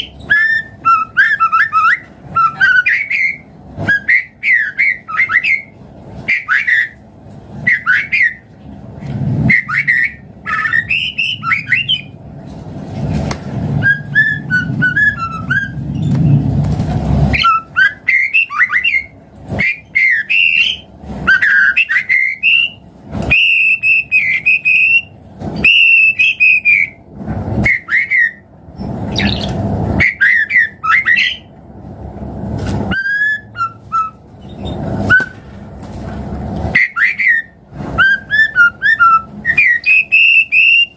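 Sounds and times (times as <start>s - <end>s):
bird singing varied song: 0.0s - 7.0s, 7.6s - 8.5s, 9.5s - 12.2s, 13.8s - 16.4s, 17.4s - 27.0s, 27.6s - 31.5s, 32.9s - 35.4s, 36.7s - 40.9s.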